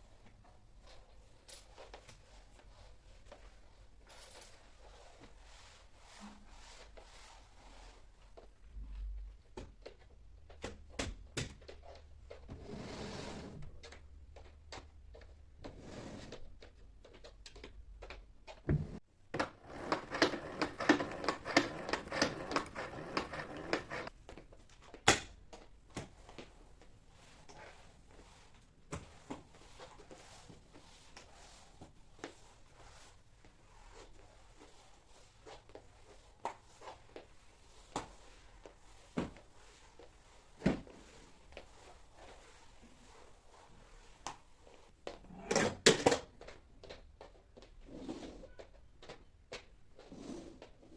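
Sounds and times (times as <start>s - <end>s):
rapid clicking and scraping: 19.4s - 24.1s.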